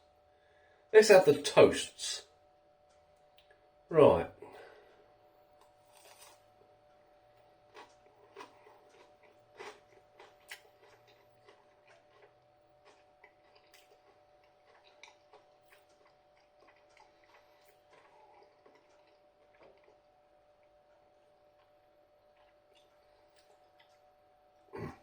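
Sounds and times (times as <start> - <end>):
crunching and chewing: 4.9 - 25.0.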